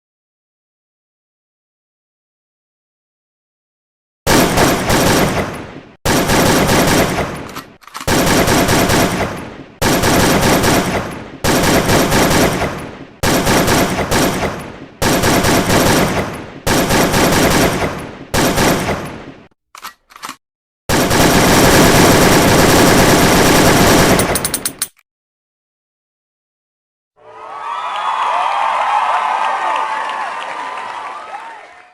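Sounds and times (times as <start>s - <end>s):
automatic gunfire bursts: 4.3s - 19.2s, 20.9s - 24.7s
brief clicks: 19.7s - 20.4s.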